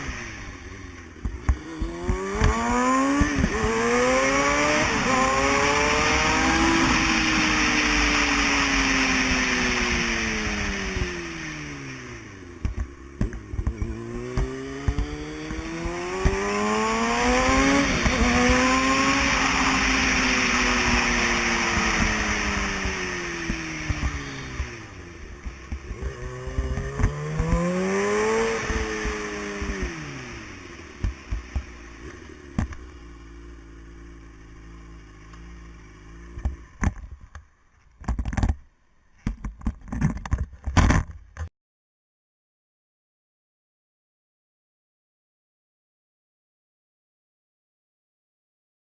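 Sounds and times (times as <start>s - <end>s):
motorcycle engine accelerating: 0.0s - 38.6s.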